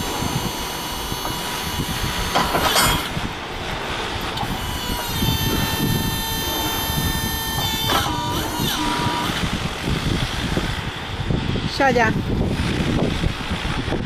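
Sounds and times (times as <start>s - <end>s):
electric motor whining: 0.0s - 11.2s.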